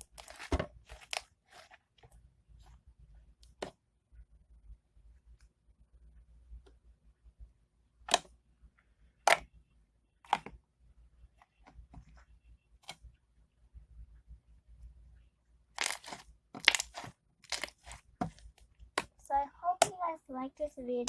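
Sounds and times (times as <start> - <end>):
slime squeezed popping: 15.8 - 18.0.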